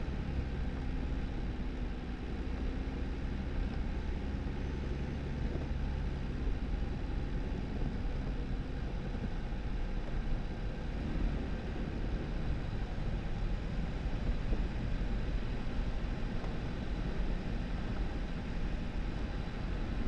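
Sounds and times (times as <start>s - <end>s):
car engine rumble: 0.0s - 20.0s
tyres rolling on snowy dirt road: 0.0s - 20.0s.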